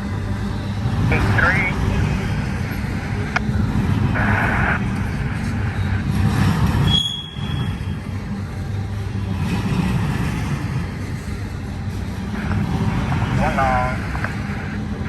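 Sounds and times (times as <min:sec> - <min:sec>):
train rumbling on rails: 0:00.0 - 0:15.0
wheel squeal: 0:05.8 - 0:08.0.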